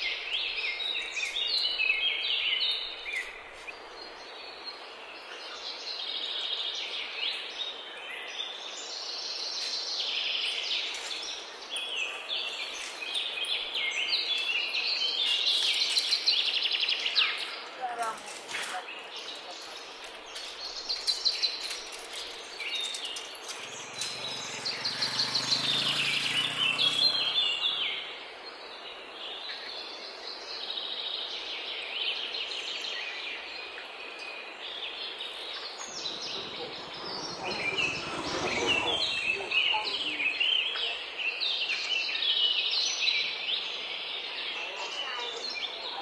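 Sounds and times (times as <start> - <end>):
outdoor background noise: 0.0 - 46.0
birds chirping and calling: 17.0 - 28.6, 35.2 - 42.6
rushing sound: 35.8 - 40.4.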